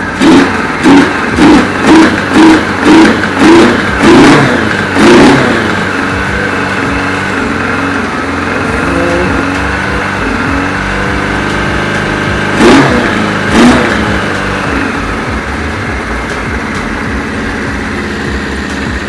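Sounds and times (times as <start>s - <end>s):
motorcycle engine revving and idling: 0.0s - 19.0s.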